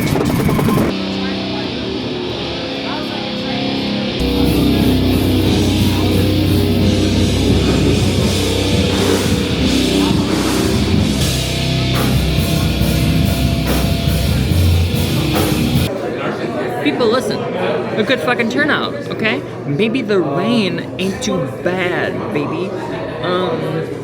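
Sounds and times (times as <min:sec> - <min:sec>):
heavy rock music: 0:00.0 - 0:15.9.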